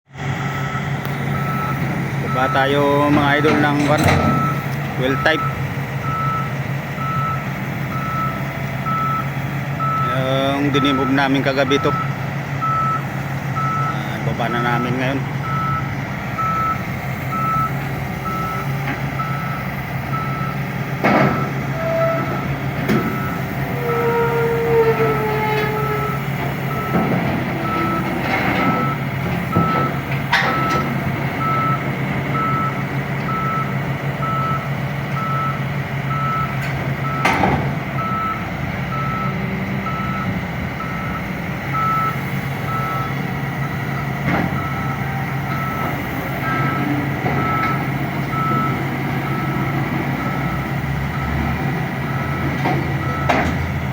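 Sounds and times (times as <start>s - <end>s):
loader engine running: 0.1s - 53.9s
reversing alarm beeps: 0.5s - 53.6s
metal clanks: 1.8s - 5.0s, 21.0s - 31.0s.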